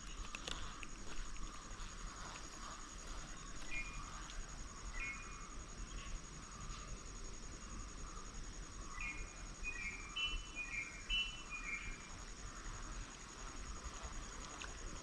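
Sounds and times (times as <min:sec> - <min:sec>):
faint outdoor hiss: 0:00.0 - 0:15.0
insect trill: 0:00.0 - 0:15.0
bird chirping: 0:03.3 - 0:04.2, 0:04.9 - 0:06.2, 0:08.9 - 0:12.1.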